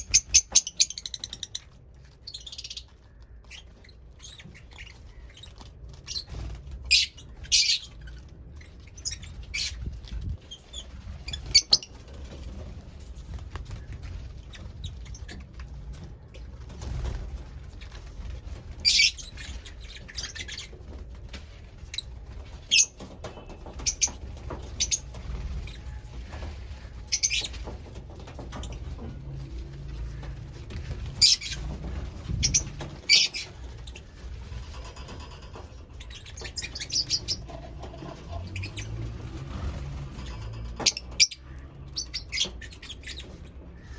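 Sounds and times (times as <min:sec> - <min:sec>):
birds clicking and rustling: 0:00.0 - 0:43.9.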